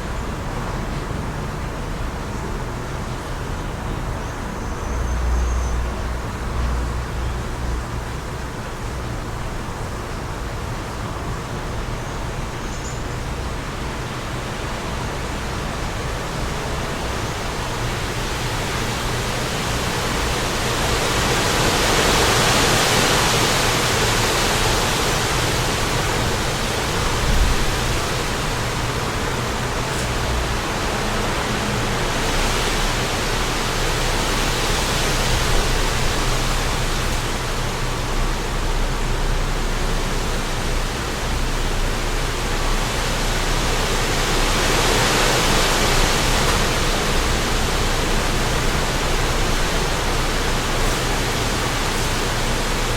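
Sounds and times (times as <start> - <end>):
wind blowing in gusts: 13.3 - 52.9.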